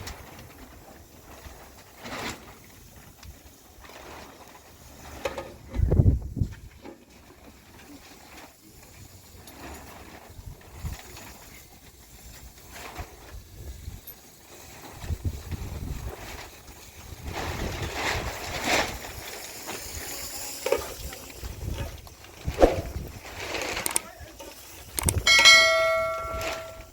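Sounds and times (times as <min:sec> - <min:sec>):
wind buffeting microphone: 0:05.7 - 0:06.7, 0:15.0 - 0:16.4, 0:21.4 - 0:23.4, 0:24.8 - 0:26.7
brief rustling: 0:22.2 - 0:24.1.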